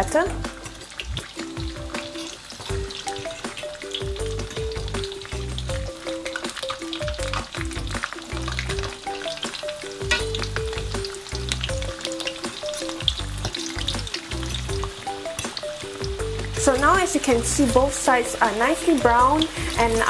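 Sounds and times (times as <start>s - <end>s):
food sizzling in hot oil: 0.0s - 20.0s
background music with pulsing bass: 2.7s - 18.0s.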